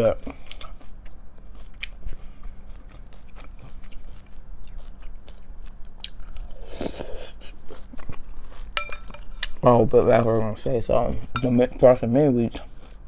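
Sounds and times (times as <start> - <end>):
cereal crunching while chewed: 0.3 - 9.6, 12.5 - 13.0.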